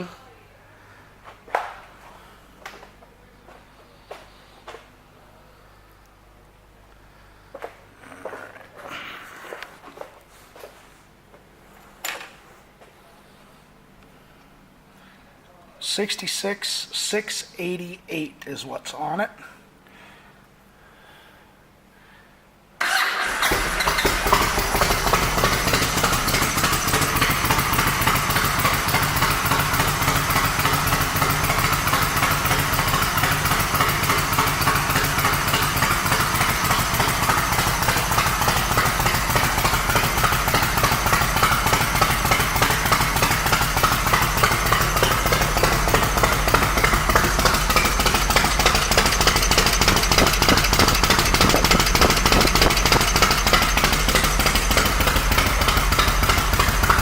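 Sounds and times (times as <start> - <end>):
motorcycle exhaust pulses: 23.6 - 57.0.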